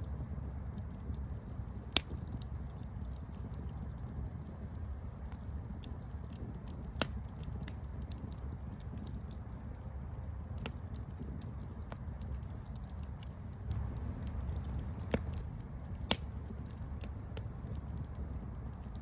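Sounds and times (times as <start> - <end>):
campfire flames rumbling: 0.0 - 19.0
fire crackles and pops: 0.0 - 19.0.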